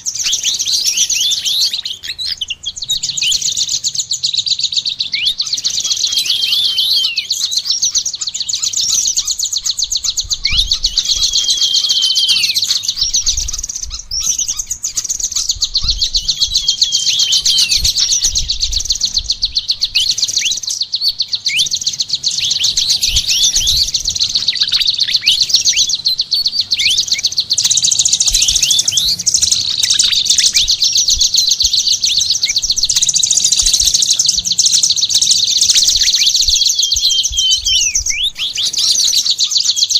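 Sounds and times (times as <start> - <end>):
songbirds chattering trill: 0.0 - 39.9
downward-sliding whistled bird notes: 4.6 - 39.9.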